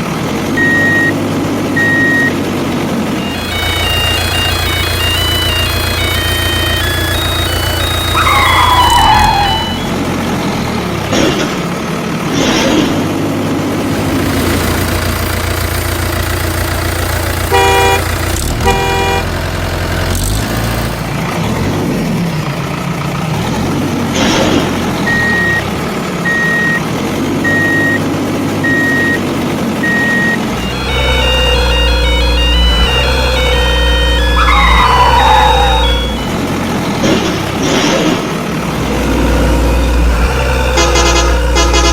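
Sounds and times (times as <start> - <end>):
heavy truck engine running: 0.0 - 41.9
reversing beeps: 0.6 - 1.2, 1.8 - 2.4, 3.2 - 10.0, 25.0 - 26.8, 27.4 - 36.7
truck horn honks: 3.2 - 10.0, 17.4 - 19.6, 29.8 - 37.0, 39.8 - 41.9.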